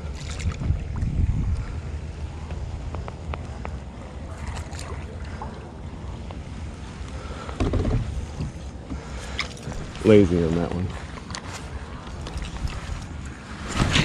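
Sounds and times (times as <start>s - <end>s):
wind on microphone: 0.0s - 3.8s
gear and hull knocks: 7.6s - 8.6s, 13.6s - 14.0s.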